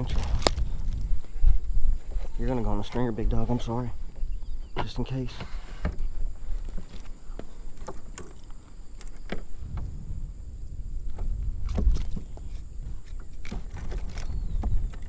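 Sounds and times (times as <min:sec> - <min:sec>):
wind rumble on microphone: 0:00.0 - 0:15.0
knocks and clicks on kayak hull: 0:04.7 - 0:10.0.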